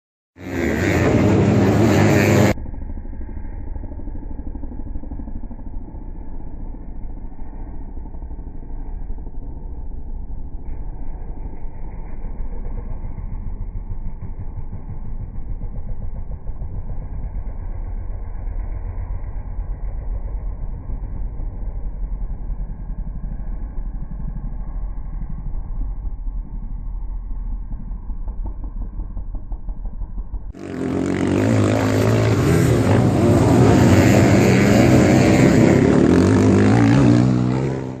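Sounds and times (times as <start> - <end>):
motocross engines revving: 0.4 - 2.6, 27.6 - 38.0
motorcycle engines rumbling: 0.4 - 38.0.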